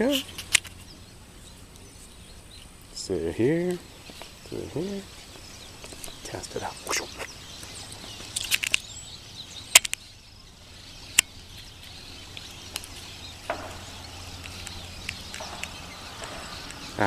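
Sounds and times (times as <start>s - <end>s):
faint bird chirps: 0.0s - 17.0s
sharp cracks: 8.2s - 9.0s, 9.6s - 10.1s, 11.1s - 17.0s.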